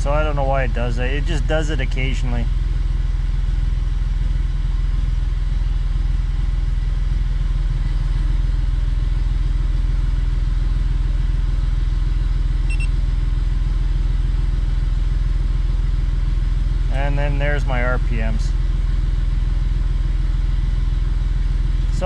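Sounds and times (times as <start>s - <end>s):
car engine idling: 0.0s - 22.0s
short electronic beep: 12.7s - 12.9s.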